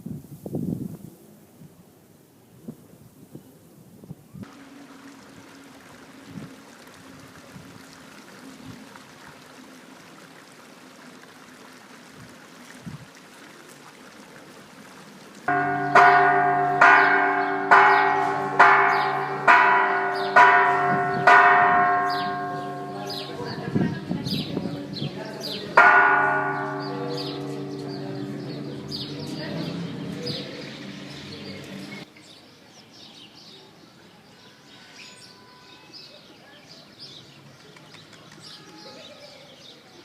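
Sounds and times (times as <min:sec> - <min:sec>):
church bell ringing: 0:15.5 - 0:32.0.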